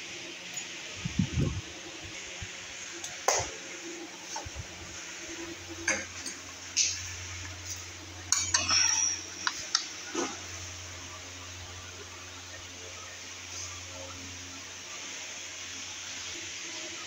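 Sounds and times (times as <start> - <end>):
metallic clinks and knocks: 8.3 - 9.8.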